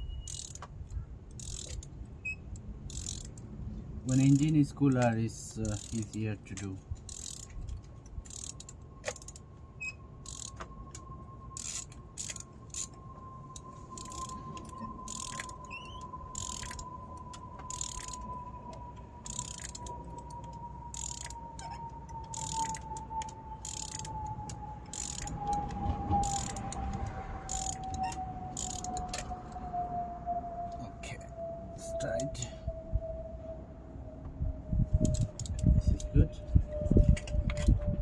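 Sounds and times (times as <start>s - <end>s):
socket ratchet clicking: 0.3s - 0.7s, 1.3s - 1.9s, 2.5s - 3.5s, 4.1s - 6.2s, 7.0s - 9.4s, 10.2s - 10.6s, 11.6s - 12.9s, 13.9s - 18.3s, 19.2s - 25.6s, 26.2s - 29.3s, 35.0s - 35.6s
high whine falling in pitch: 8.5s - 38.0s.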